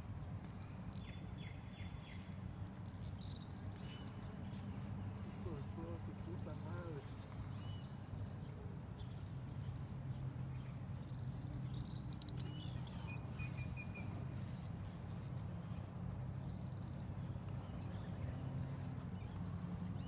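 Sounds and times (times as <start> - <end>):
bird chirps: 6.4 - 8.4.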